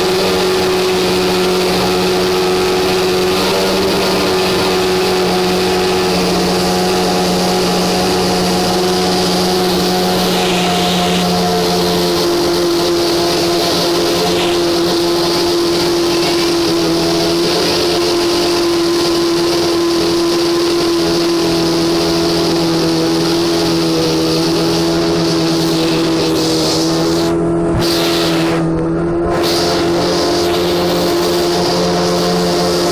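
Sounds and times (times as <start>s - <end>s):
racing car engine running steadily: 0.0s - 32.9s.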